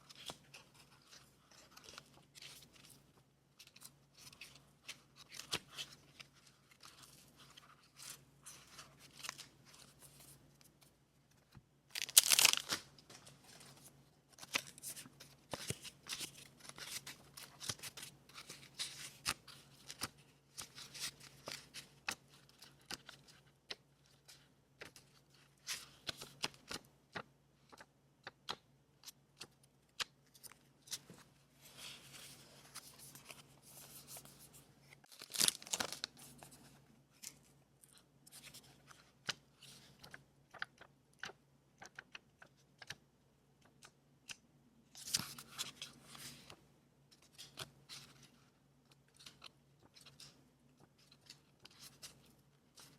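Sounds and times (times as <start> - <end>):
paper rustling and crinkling: 3.6 - 26.8, 30.3 - 41.3.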